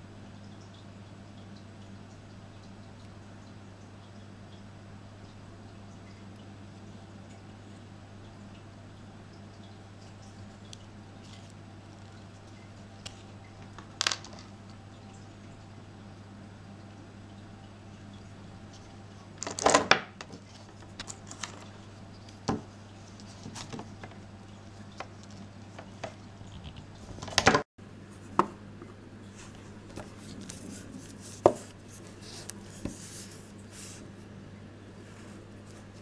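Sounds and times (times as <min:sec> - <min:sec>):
small hard objects clicking: 0:13.6 - 0:14.6.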